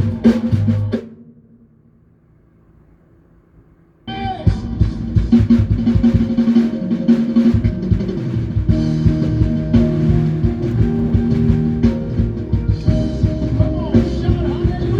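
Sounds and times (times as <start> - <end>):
band rehearsing: 4.1 - 14.9
drum kit playing: 4.1 - 14.9.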